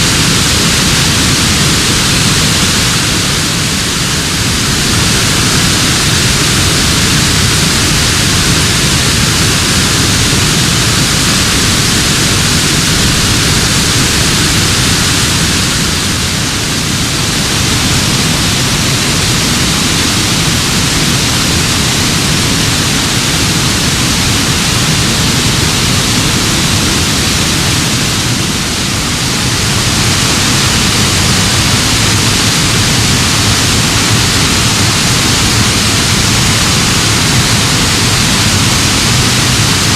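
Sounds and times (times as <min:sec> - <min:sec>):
creek cascading down rocks: 0:00.0 - 0:39.9.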